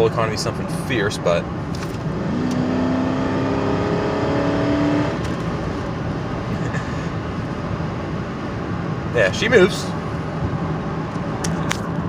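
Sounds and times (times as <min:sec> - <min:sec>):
road noise: 0:00.0 - 0:12.0
car engine accelerating: 0:01.7 - 0:06.9.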